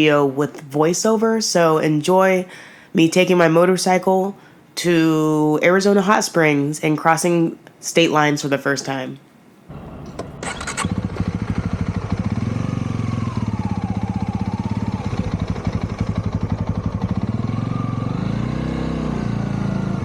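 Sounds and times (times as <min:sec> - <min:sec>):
motorcycle engine running: 0:09.7 - 0:20.0.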